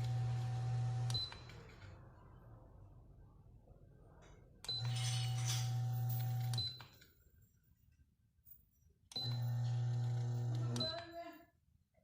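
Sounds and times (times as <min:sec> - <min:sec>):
electric fan motor humming: 0:00.0 - 0:01.2, 0:09.3 - 0:10.8.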